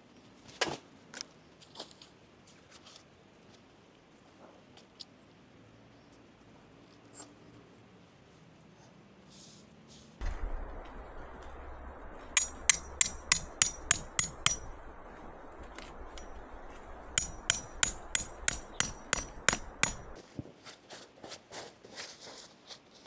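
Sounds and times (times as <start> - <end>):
hammer striking metal: 10.2 - 20.2.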